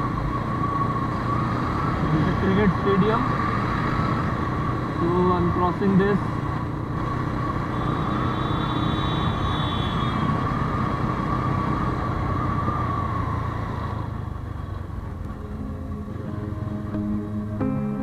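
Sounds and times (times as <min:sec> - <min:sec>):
city traffic rumble: 0:00.0 - 0:18.0.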